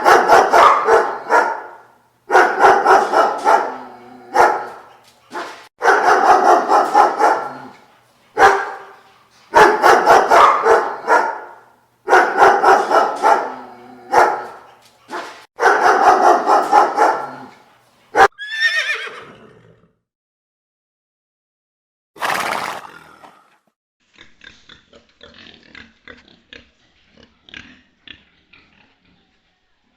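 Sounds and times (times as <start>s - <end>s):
dog barking: 0.0s - 7.8s, 8.4s - 18.3s
horse whinny: 18.3s - 20.0s, 22.2s - 23.5s.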